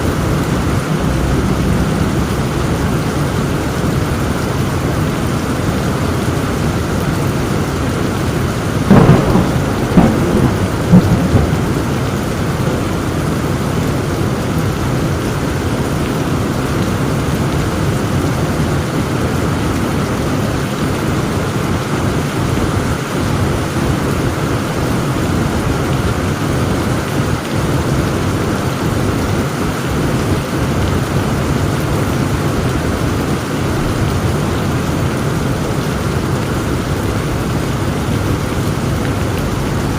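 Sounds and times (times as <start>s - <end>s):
heavy rain falling: 0.0s - 39.9s
thunder cracks: 8.9s - 13.4s.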